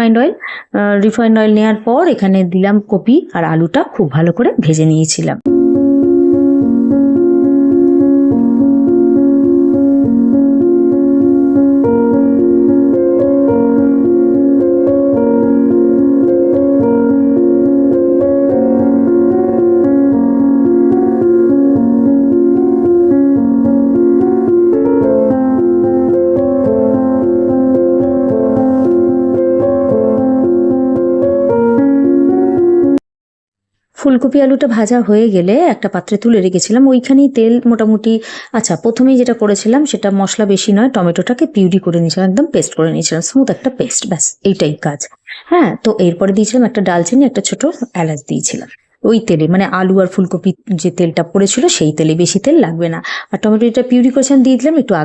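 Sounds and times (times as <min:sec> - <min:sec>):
soft piano music: 0:05.5 - 0:33.0.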